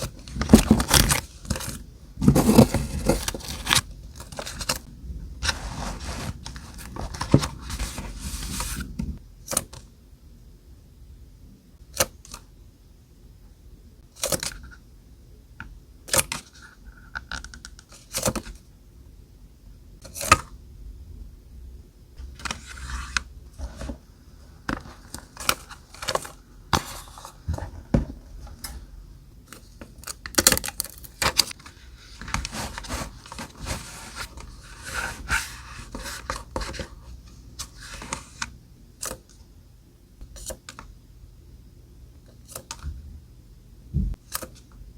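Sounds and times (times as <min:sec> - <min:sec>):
paper rustling: 0:00.0 - 0:09.2, 0:30.4 - 0:37.0.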